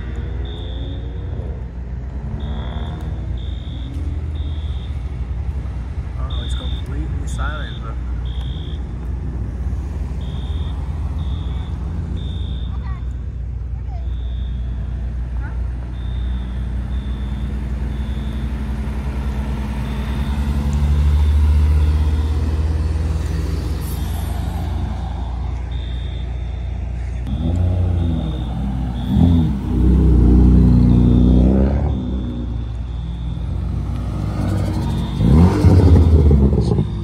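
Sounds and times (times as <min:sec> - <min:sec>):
car engine revving: 0:00.0 - 0:12.7, 0:27.2 - 0:37.0
cars driving past: 0:00.0 - 0:37.0.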